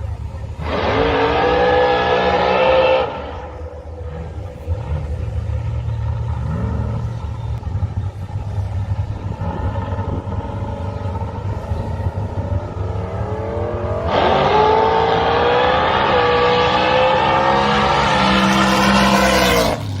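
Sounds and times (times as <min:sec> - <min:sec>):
drag car engine roaring: 0:00.0 - 0:20.0
engine rumble: 0:00.0 - 0:20.0.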